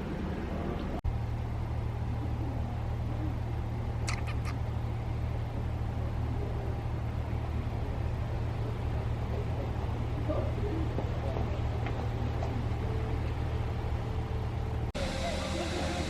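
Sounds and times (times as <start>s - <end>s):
low engine hum: 0.0s - 16.0s
quick high chirps: 4.1s - 4.6s.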